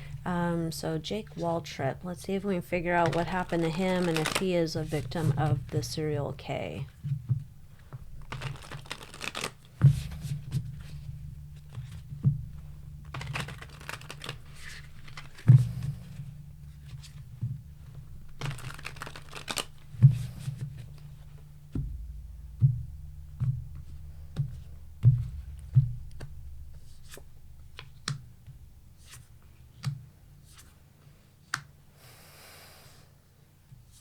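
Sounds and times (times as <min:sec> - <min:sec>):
cards shuffling: 0:02.1 - 0:07.2, 0:07.8 - 0:12.0, 0:12.6 - 0:17.3, 0:18.3 - 0:21.4
cards tapping and flicking: 0:02.2 - 0:21.9, 0:29.0 - 0:30.7.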